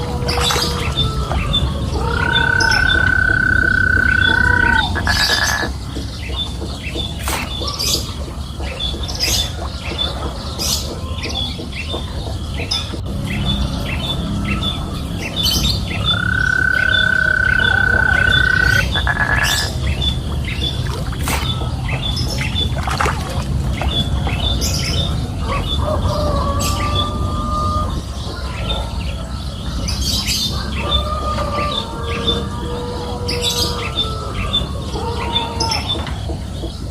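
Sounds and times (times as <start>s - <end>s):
birds chirping and calling: 0.0s - 36.9s.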